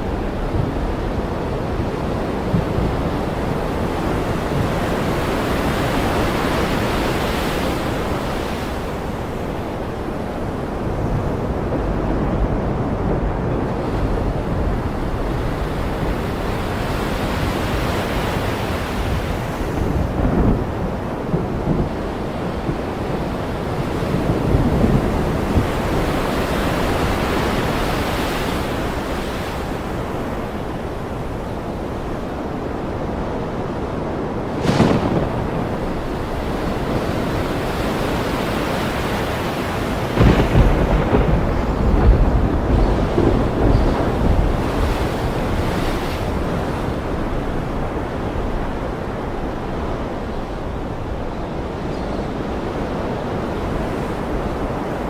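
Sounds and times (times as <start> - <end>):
ocean surf breaking: 0.0 - 55.0
thunder rumbling: 19.1 - 27.8, 34.4 - 38.4, 39.2 - 48.8.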